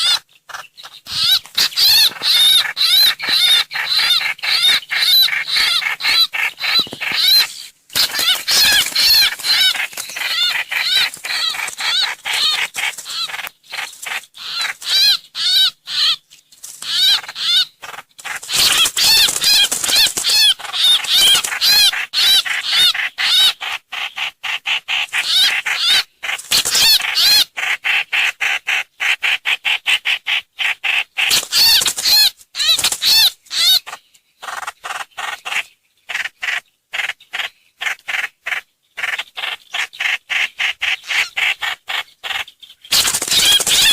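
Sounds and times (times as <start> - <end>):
bird calls: 0.0 - 43.9.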